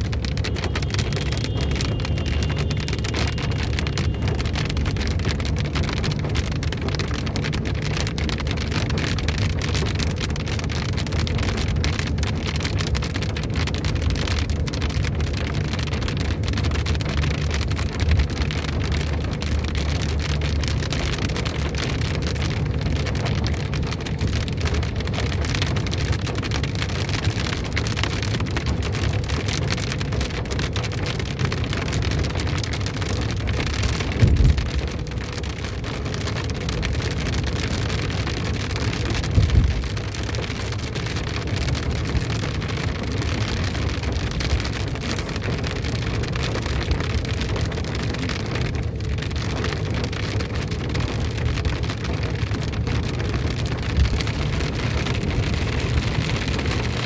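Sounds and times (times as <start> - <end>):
low rumble: 0.0 - 8.7, 32.9 - 35.5, 51.3 - 57.0
heavy rain pouring: 0.0 - 57.0.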